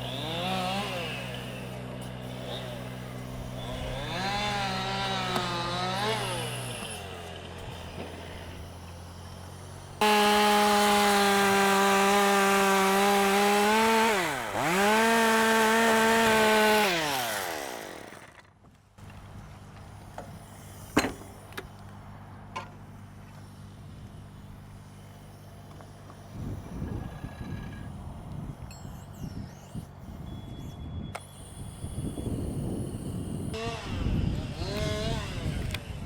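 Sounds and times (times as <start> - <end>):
chainsaw revving and cutting: 0.0 - 18.5, 33.4 - 36.0.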